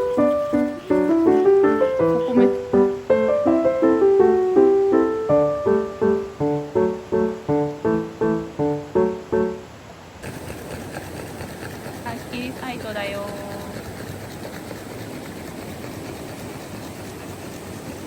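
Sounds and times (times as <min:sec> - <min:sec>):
piano music: 0:00.0 - 0:09.9.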